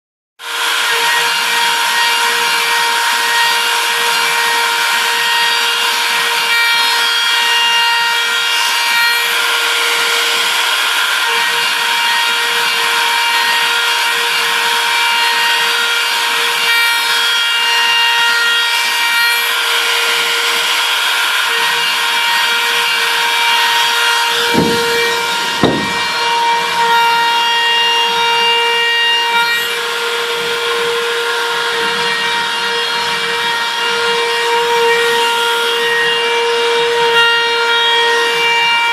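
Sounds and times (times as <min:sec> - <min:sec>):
cutter hissing through material: 0:00.4 - 0:36.1
machine spindle high whine: 0:00.4 - 0:38.9
short knocks: 0:24.3 - 0:26.5.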